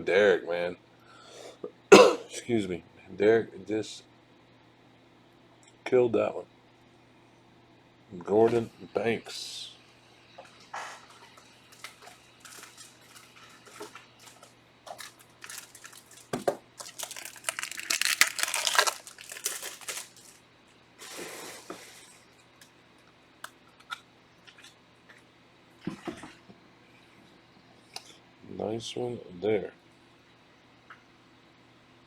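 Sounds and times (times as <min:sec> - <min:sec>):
plastic packaging crinkling: 0:11.7 - 0:20.4.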